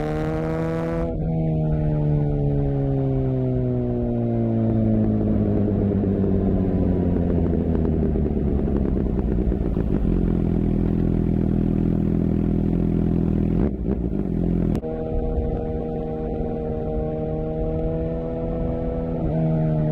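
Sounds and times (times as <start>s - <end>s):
motorcycle engine idling: 4.6s - 14.8s.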